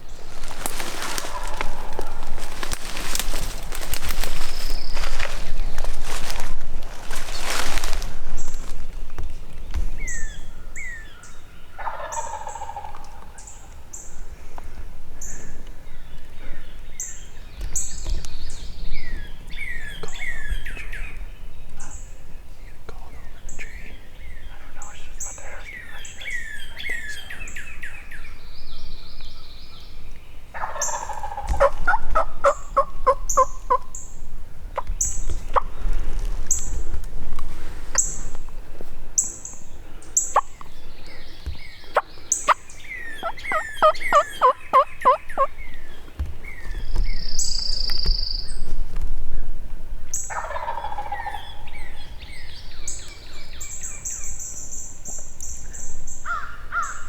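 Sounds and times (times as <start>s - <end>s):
turkey yelping: 0.7s - 3.2s, 11.8s - 13.0s, 30.6s - 33.9s, 41.9s - 45.6s, 50.3s - 51.7s.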